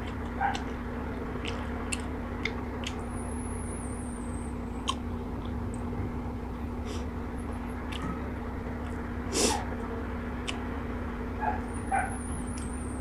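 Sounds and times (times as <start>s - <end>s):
chewing and wet mouth sounds: 0.0s - 3.2s, 4.6s - 5.9s, 6.9s - 8.2s, 8.8s - 9.8s, 10.4s - 10.7s
low hum: 0.0s - 13.0s.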